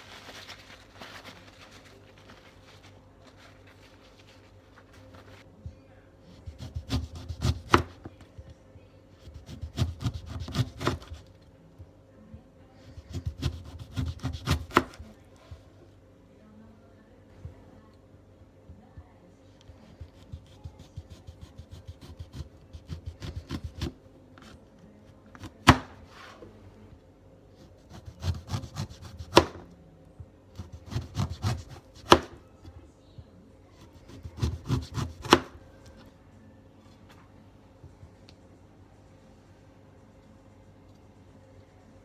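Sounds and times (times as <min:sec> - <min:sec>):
knife slicing lemon: 0:06.4 - 0:08.1, 0:09.2 - 0:11.3, 0:13.0 - 0:15.0, 0:20.0 - 0:24.6, 0:27.6 - 0:29.7, 0:30.6 - 0:32.4, 0:33.8 - 0:35.6
blade knocking on cutting board: 0:34.4 - 0:35.6.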